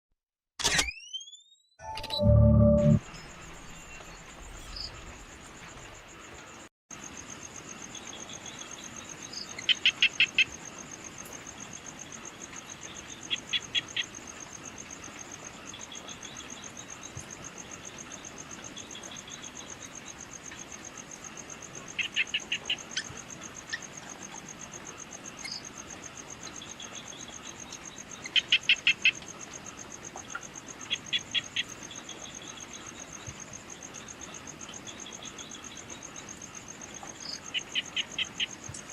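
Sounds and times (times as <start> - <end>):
cricket-like trill: 0.7 - 38.9.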